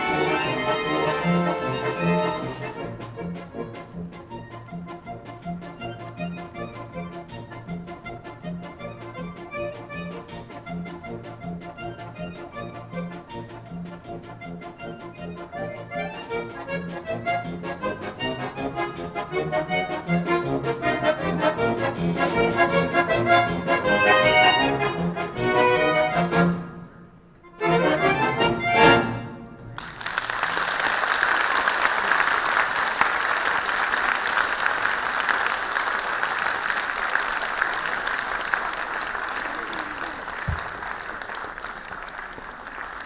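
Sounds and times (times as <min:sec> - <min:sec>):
accordion orchestra playing: 0:00.0 - 0:43.0
audience applause: 0:29.8 - 0:43.0.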